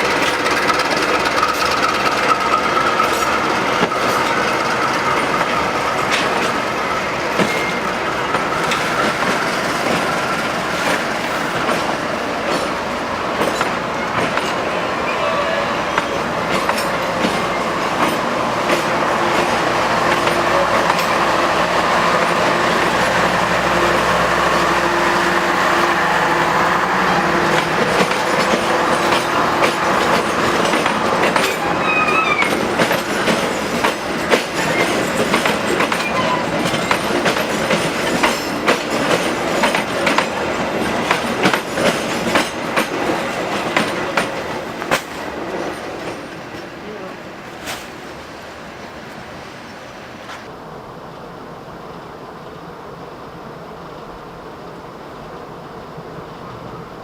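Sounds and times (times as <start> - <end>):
wheels clicking over rail joints: 0.0 - 14.8, 15.9 - 25.6, 27.0 - 48.0
train rumble: 0.0 - 57.0.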